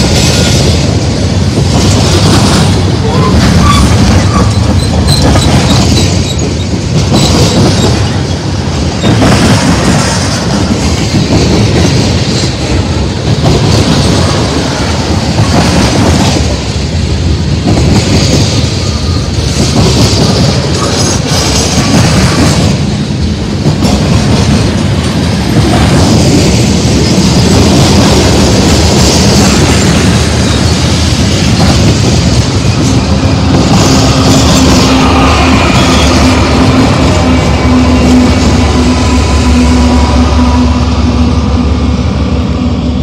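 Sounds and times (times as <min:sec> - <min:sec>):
train wheels rumbling and clacking: 0:00.0 - 0:43.0
high wheel squeal: 0:03.0 - 0:08.4, 0:33.8 - 0:40.6.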